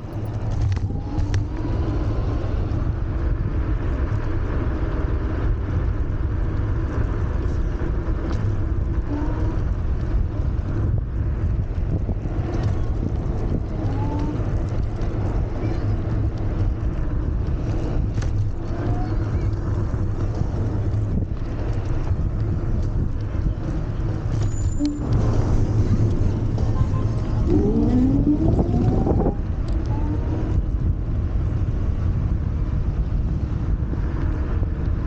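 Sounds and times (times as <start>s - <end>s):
scooter road noise: 0.0s - 35.0s
wind rush on microphone: 0.0s - 35.0s
faint short rising tones: 27.1s - 29.5s.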